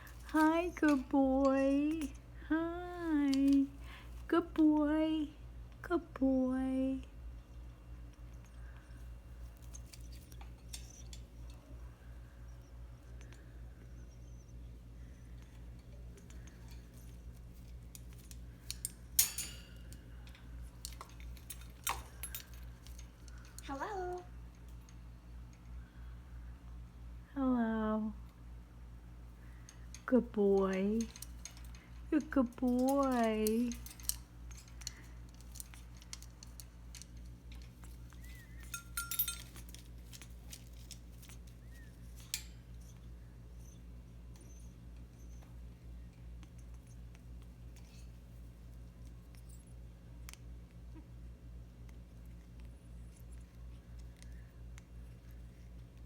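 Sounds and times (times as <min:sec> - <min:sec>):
sharp metallic clinks ringing: 0:18.6 - 0:20.2, 0:30.6 - 0:40.3
parrot steady tone: 0:38.0 - 0:39.7.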